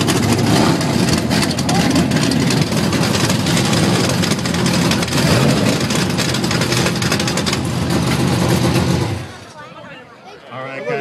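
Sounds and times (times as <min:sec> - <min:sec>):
engine revving loudly: 0:00.0 - 0:06.3.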